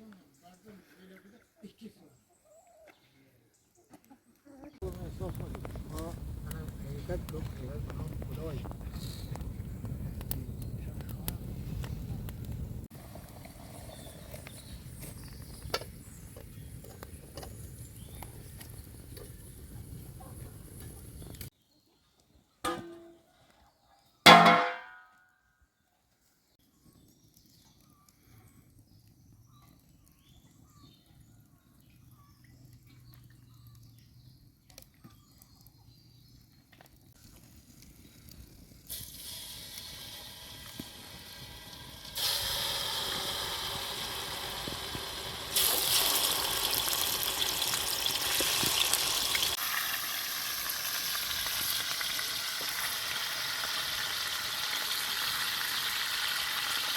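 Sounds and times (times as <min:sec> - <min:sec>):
food sizzling in a pan: 0:38.9 - 0:56.9.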